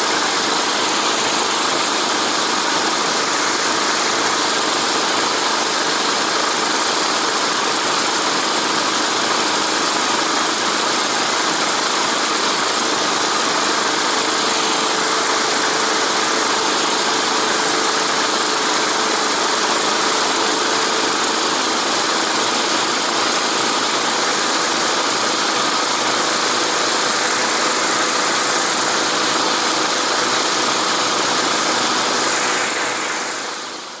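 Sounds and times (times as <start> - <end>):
vehicle engine running: 9.9 - 34.0
strong even hiss: 26.1 - 34.0.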